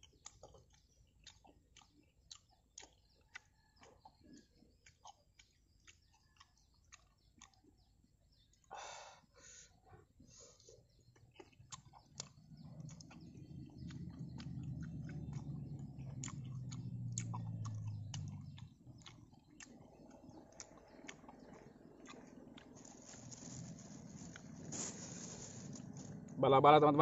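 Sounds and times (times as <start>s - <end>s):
chewing food: 0.0s - 8.7s, 9.8s - 26.4s
sharp mouth clicks: 10.6s - 22.8s.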